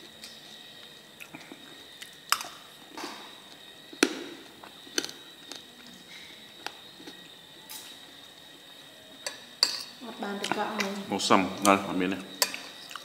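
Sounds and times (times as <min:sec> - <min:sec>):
faint high whine: 0:00.0 - 0:13.0
chewing crunchy food: 0:04.4 - 0:08.0, 0:10.4 - 0:13.0.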